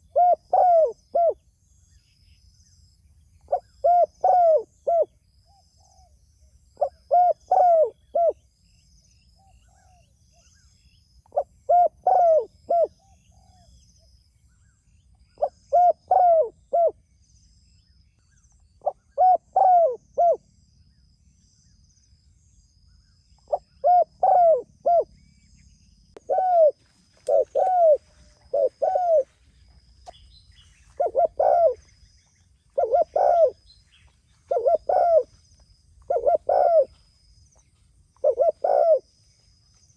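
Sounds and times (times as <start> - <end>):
dove cooing: 0.0 - 1.4, 3.5 - 5.2, 6.8 - 8.4, 11.3 - 13.7, 15.4 - 17.0, 18.8 - 20.4, 23.5 - 25.2, 26.2 - 35.4, 36.0 - 37.1, 37.7 - 39.1
faint high-pitched chirping: 0.0 - 39.9.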